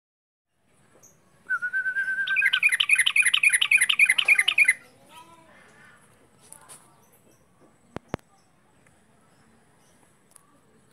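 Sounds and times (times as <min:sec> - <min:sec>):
bird trilling and chirping: 0:01.0 - 0:05.1.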